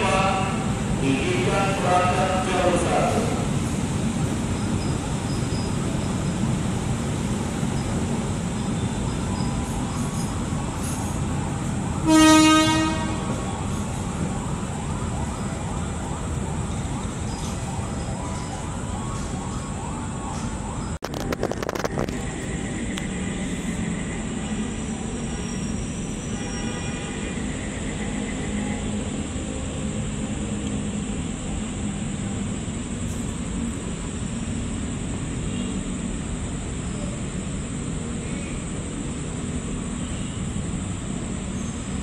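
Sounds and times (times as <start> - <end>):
train wheels rumbling on rails: 0.0 - 42.0
train horn blast: 12.0 - 13.5, 26.2 - 28.9.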